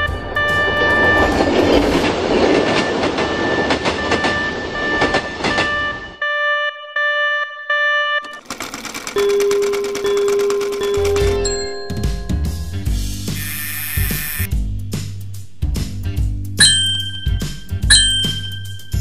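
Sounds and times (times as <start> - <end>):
train wheels clattering: 1.1 - 6.0
steady ringing tone: 8.3 - 14.5, 16.6 - 19.0.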